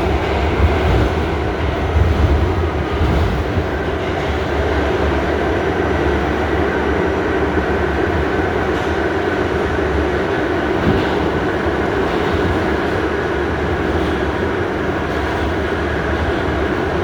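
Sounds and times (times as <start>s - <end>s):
light track clicks: 0.0s - 17.0s
subway wheels rumbling on rails: 0.0s - 17.0s.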